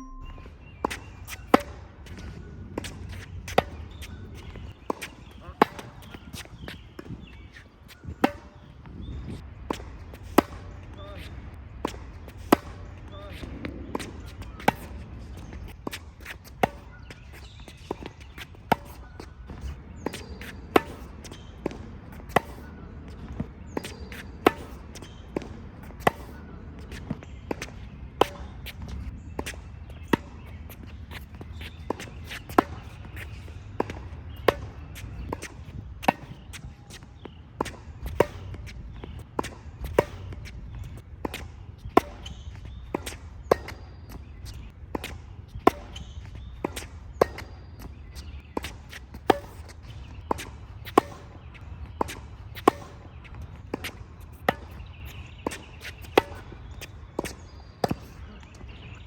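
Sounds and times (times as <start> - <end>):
faint bird chirps: 0.0 - 1.5
tennis racket hitting balls: 0.5 - 59.0.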